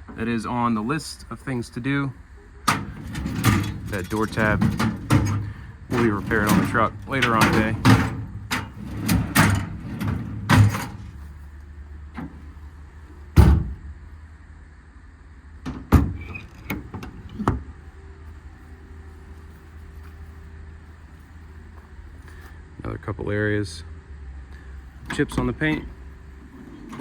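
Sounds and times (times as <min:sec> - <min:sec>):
steady low hum: 0:00.0 - 0:27.0
metal doors clunking: 0:02.4 - 0:11.4, 0:12.0 - 0:12.7, 0:13.3 - 0:13.9, 0:15.6 - 0:17.7, 0:25.0 - 0:27.0
latch clicks: 0:02.6 - 0:11.2.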